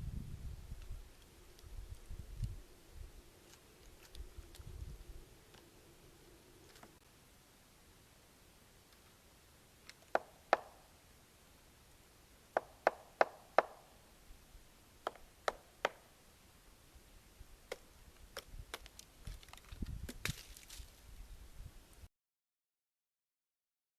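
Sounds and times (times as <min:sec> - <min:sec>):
woodpecker pecking on wood: 0:09.8 - 0:10.8, 0:12.5 - 0:13.9, 0:15.0 - 0:16.1.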